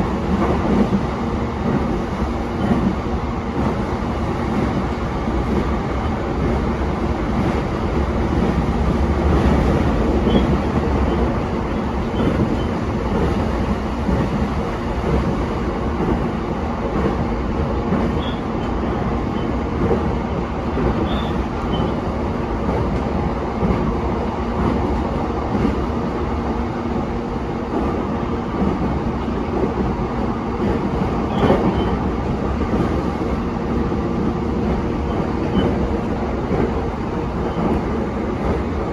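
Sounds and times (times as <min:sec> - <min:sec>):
electric train rolling: 0:00.0 - 0:26.1
faint short squeaks: 0:18.2 - 0:18.4, 0:21.0 - 0:22.0.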